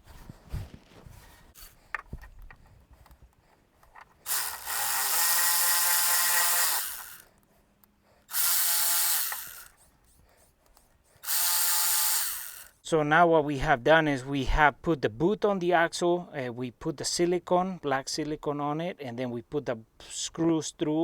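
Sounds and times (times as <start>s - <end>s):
power drill-driver running: 1.6s - 1.8s, 4.2s - 7.3s, 8.3s - 9.8s, 11.2s - 12.8s.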